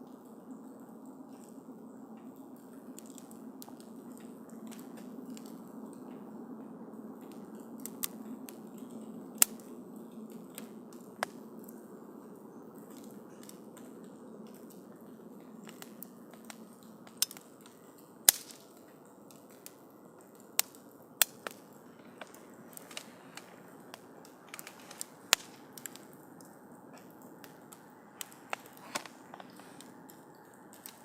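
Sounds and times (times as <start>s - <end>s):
campfire crackling: 0.1s - 31.0s
sharp fire pops: 15.6s - 19.8s, 20.5s - 26.2s, 27.0s - 30.2s.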